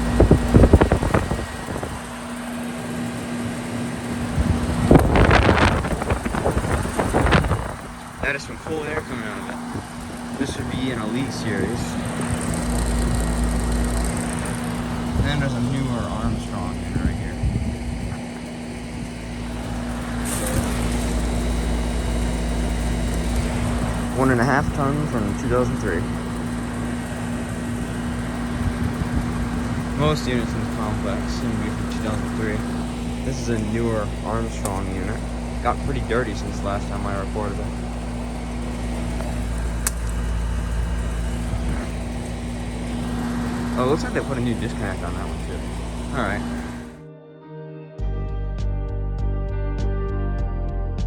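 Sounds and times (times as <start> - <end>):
gusty rushing noise: 0.0 - 2.2, 4.0 - 25.3
fan air hiss: 0.0 - 47.0
heat pump humming: 0.0 - 47.0.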